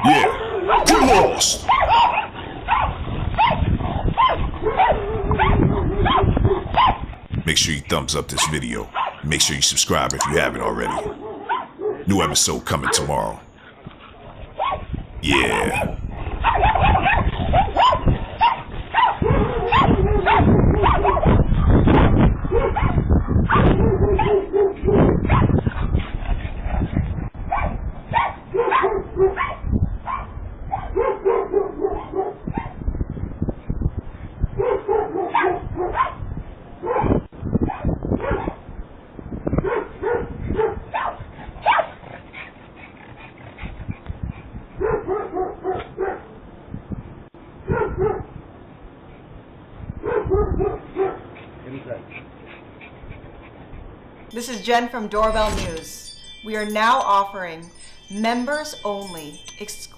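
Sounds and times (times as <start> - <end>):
dog barking and whining: 15.5 - 21.3.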